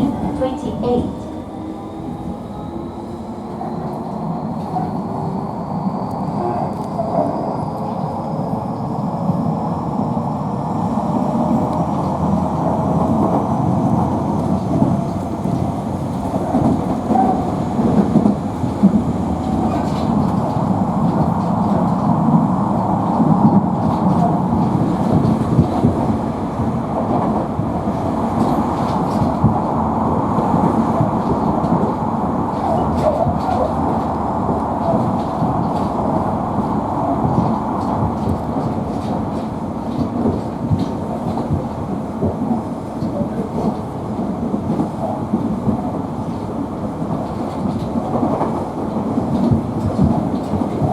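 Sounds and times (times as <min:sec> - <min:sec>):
train wheels rumbling on rail: 0:00.0 - 0:50.9
rail-joint clacks: 0:13.0 - 0:50.9.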